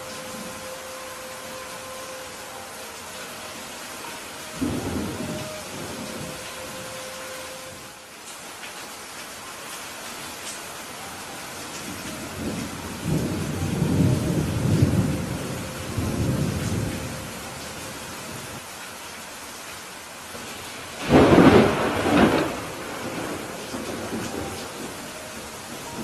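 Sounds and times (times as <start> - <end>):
steady rain: 0.0 - 26.0
low rolling thunder: 4.6 - 6.9, 11.9 - 17.6, 21.0 - 26.0
sharp thunderclap: 21.0 - 24.2.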